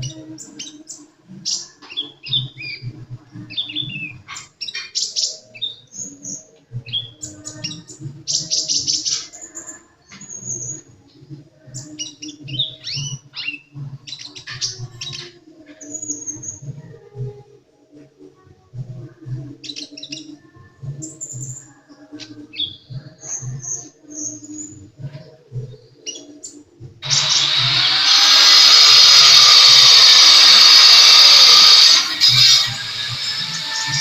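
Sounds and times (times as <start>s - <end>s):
loud harsh hissing: 27.0s - 34.0s.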